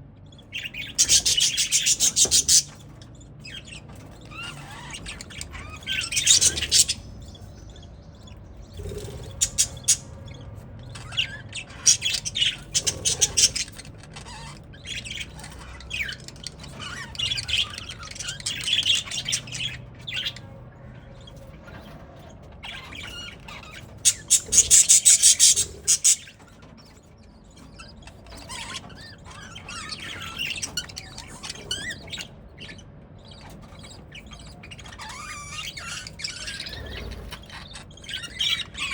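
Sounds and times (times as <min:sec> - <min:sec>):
budgerigars chirping and chattering: 0:00.0 - 0:38.9.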